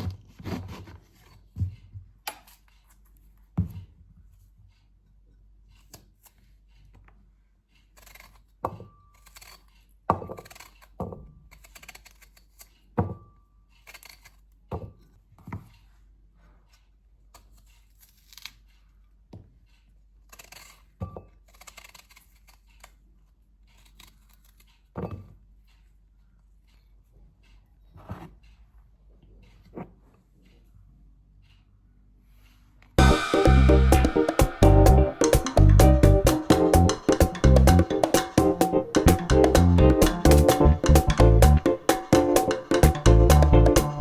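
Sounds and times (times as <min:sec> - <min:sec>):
soft rustling of handling: 0:00.0 - 0:33.0.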